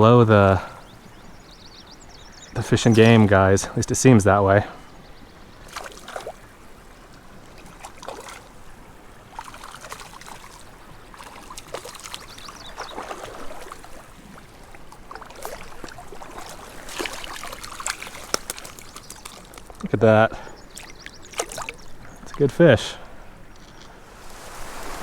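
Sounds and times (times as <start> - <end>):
creek water splashing: 0.0 - 25.0.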